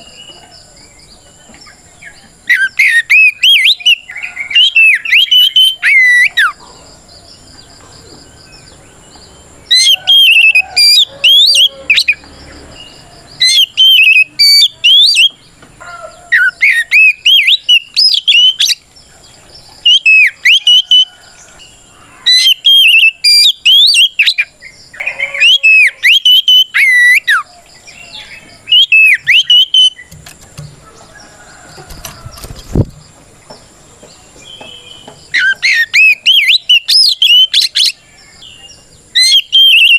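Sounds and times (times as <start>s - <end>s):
bird singing whistled phrases: 2.4s - 6.6s, 9.7s - 12.2s, 13.4s - 15.4s, 16.4s - 18.8s, 19.8s - 21.1s, 22.3s - 30.1s, 34.6s - 39.9s.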